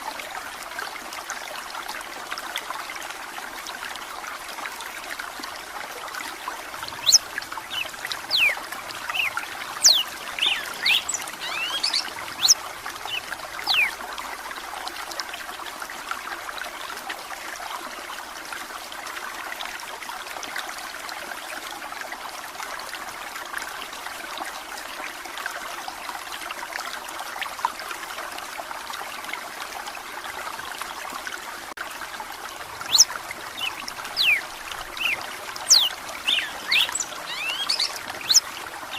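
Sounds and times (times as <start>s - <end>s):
water trickling: 0.0s - 38.9s
bird whistling sharp notes: 7.8s - 12.6s, 35.0s - 38.4s.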